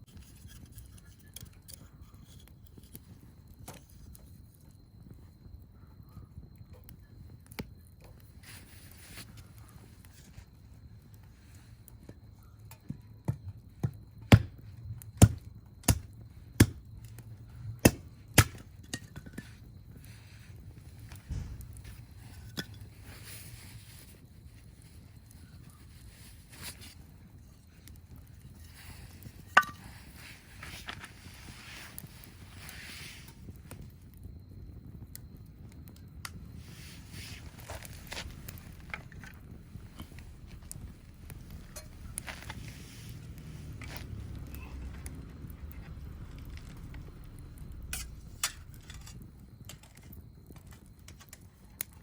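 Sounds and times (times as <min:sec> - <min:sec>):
bonfire crackling and popping: 0:00.0 - 0:52.0
hatchet chopping firewood: 0:12.9 - 0:14.6, 0:15.2 - 0:16.8, 0:17.8 - 0:19.1, 0:29.6 - 0:29.8
low steady rumble: 0:19.4 - 0:23.1, 0:27.4 - 0:50.6.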